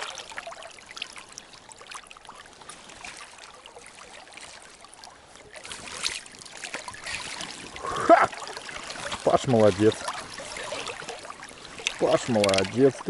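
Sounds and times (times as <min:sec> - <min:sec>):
water trickling and splashing: 0:00.0 - 0:13.0
small clicks and taps: 0:11.8 - 0:12.8.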